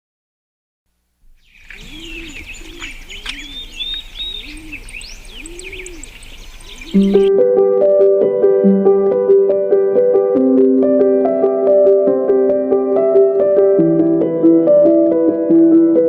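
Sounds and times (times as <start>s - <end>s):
small birds chirping: 1.2s - 7.3s
dove cooing: 1.7s - 7.3s.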